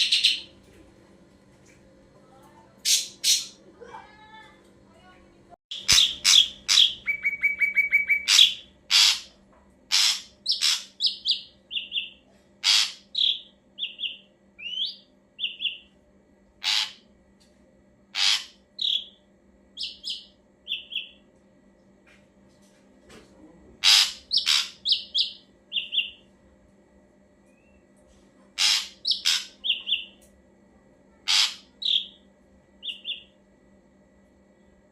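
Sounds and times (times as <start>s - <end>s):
bird singing trills and whistles: 5.7s - 9.1s, 12.8s - 15.9s, 24.0s - 26.2s, 32.8s - 33.3s.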